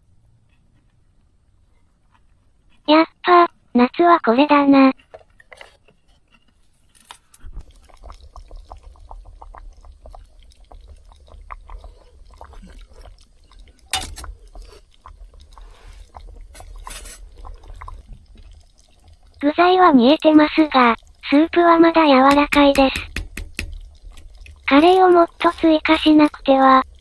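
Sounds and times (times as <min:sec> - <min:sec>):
low steady hum: 0:07.5 - 0:27.0
utensils clicking and tapping: 0:22.2 - 0:26.1
sharp knocks: 0:22.3 - 0:23.8.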